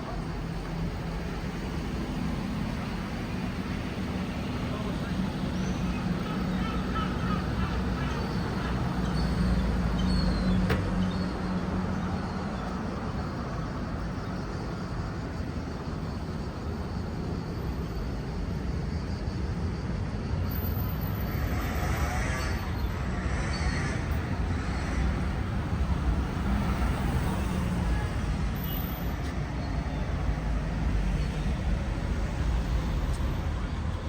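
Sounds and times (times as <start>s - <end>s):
cars passing: 0.0s - 13.2s, 20.7s - 34.0s
vehicle engine hum: 0.0s - 34.0s.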